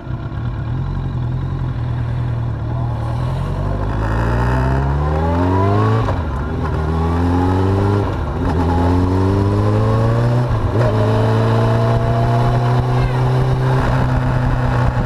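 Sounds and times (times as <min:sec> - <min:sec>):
steady low drone: 0:00.0 - 0:08.5
motorcycle engine accelerating: 0:00.0 - 0:15.0.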